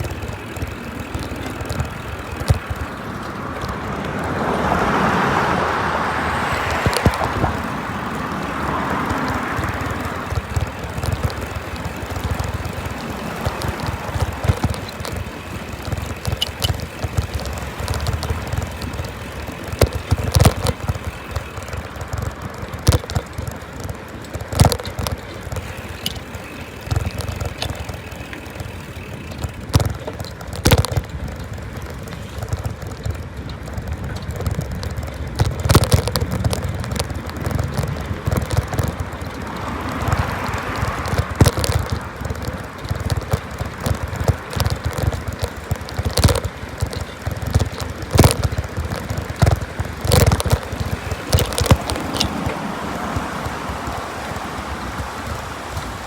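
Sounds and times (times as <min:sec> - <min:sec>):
wind buffeting microphone: 0:00.0 - 0:23.4, 0:30.9 - 0:56.0
sharp knocks and rattles: 0:00.0 - 0:56.0
steady bicycle riding rumble: 0:00.0 - 0:56.0.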